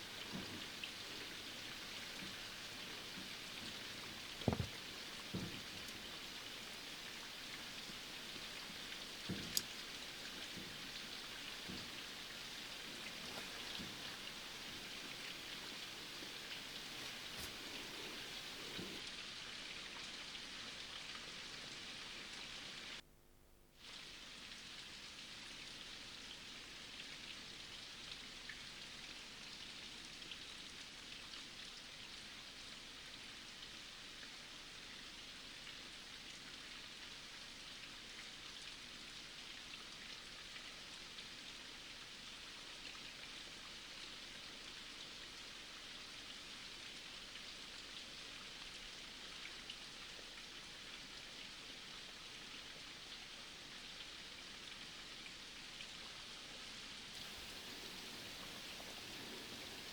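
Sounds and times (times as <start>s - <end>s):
rain falling: 0.0s - 19.0s, 57.2s - 59.9s.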